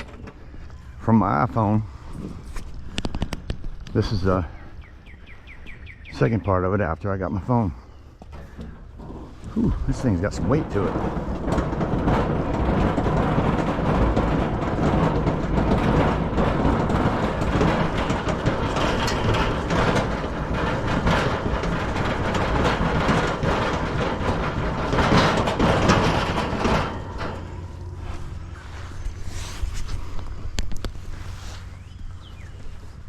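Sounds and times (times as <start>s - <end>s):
knocks and rustles: 0.0s - 33.0s
loud rumbling noise: 8.4s - 33.0s.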